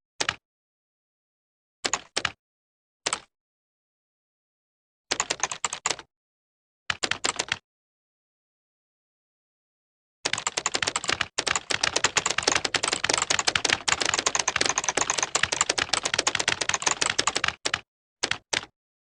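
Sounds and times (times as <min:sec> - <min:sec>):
keyboard typing clicks: 0:00.2 - 0:00.4, 0:01.8 - 0:02.4, 0:05.1 - 0:06.1, 0:06.9 - 0:07.6, 0:10.3 - 0:18.7.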